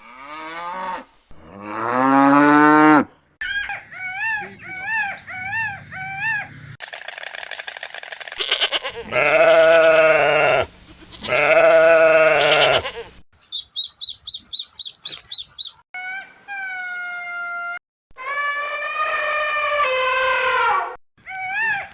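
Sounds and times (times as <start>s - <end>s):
animal calls: 3.4s - 7.0s, 8.2s - 17.5s, 21.2s - 21.9s.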